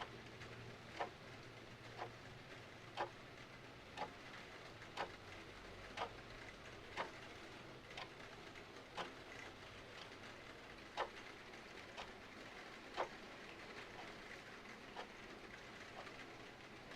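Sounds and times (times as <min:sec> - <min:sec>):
faint rain hiss: 0:00.0 - 0:16.9
mechanical clock ticking: 0:00.9 - 0:01.2, 0:01.9 - 0:02.2, 0:02.9 - 0:03.2, 0:04.9 - 0:05.3, 0:05.9 - 0:07.2, 0:07.9 - 0:08.2, 0:08.9 - 0:10.2, 0:10.9 - 0:11.2, 0:12.9 - 0:13.2, 0:14.9 - 0:16.9.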